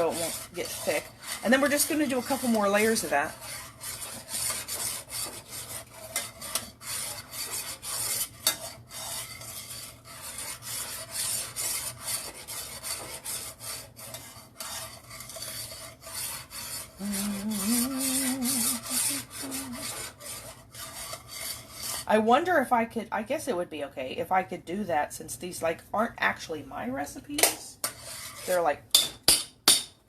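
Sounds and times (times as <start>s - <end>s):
spoon scraping a pot: 0.0s - 22.1s, 27.8s - 29.1s.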